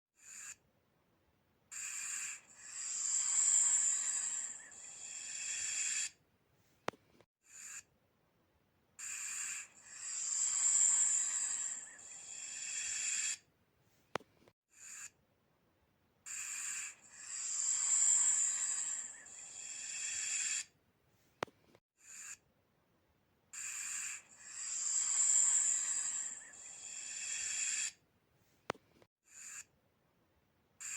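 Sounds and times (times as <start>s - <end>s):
snake hissing: 1.8s - 6.2s, 9.0s - 13.4s, 16.3s - 20.7s, 23.6s - 28.0s.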